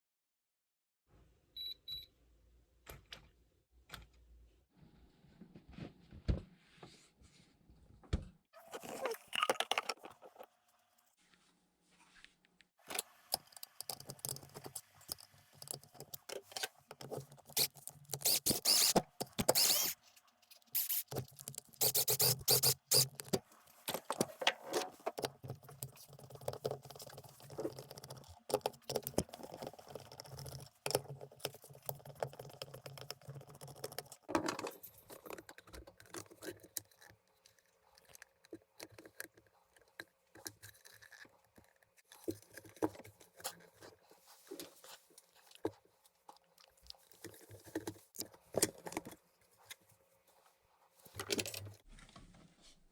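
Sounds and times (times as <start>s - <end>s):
plastic and metal parts rattling: 51.1s - 52.2s.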